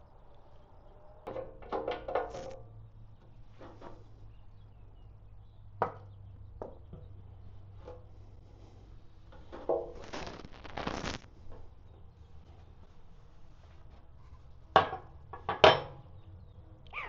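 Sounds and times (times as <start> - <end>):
tools knocking and clinking: 14.8 - 16.0.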